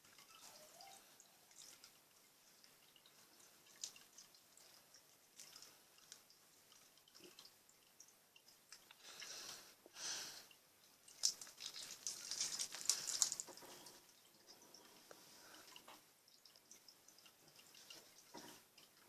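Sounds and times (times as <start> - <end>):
slime squelching: 11.0 - 13.6.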